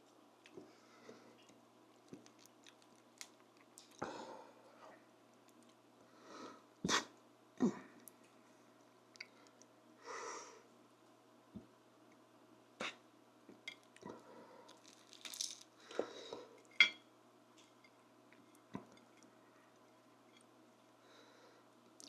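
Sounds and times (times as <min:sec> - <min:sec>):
utensil clinking on a plate: 0:16.7 - 0:17.0.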